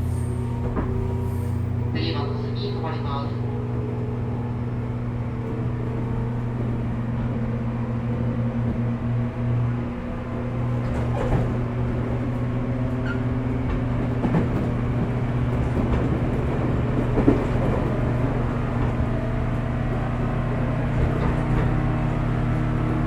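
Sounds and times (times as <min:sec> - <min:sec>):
train traction motor hum: 0:00.0 - 0:23.0
wheels clacking on rail joints: 0:09.9 - 0:23.0.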